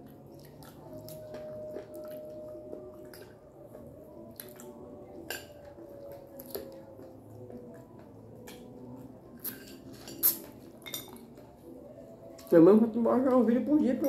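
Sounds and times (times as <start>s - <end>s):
wet chewing: 0.0s - 10.6s.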